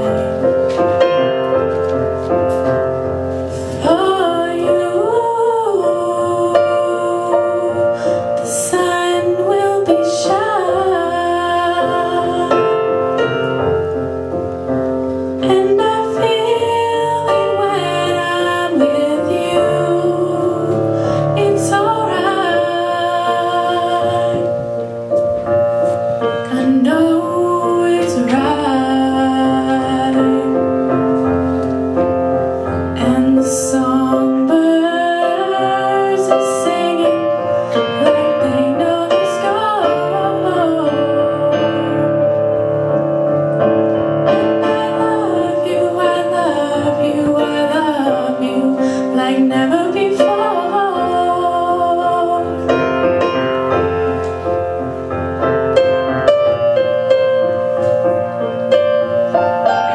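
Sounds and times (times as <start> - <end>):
piano playing slow song: 0.0 - 59.9
woman singing: 3.6 - 13.5, 15.4 - 24.8, 26.2 - 31.1, 32.9 - 42.6, 44.3 - 53.2.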